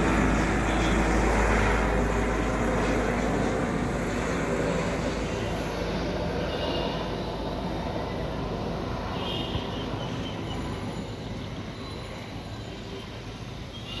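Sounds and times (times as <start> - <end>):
aircraft engine rumble: 0.0 - 9.2.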